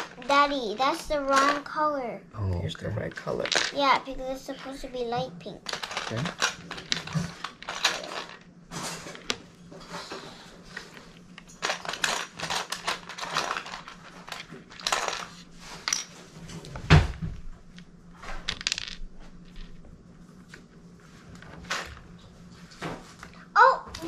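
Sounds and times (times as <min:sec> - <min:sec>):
plastic bricks clattering: 0:03.3 - 0:03.8, 0:05.6 - 0:08.4, 0:11.6 - 0:16.0, 0:18.4 - 0:19.8.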